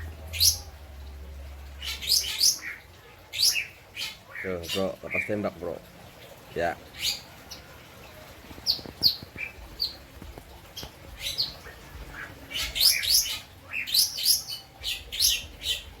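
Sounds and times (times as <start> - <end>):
lovebird chirping: 0.0 - 1.0, 1.6 - 5.3, 8.5 - 16.0.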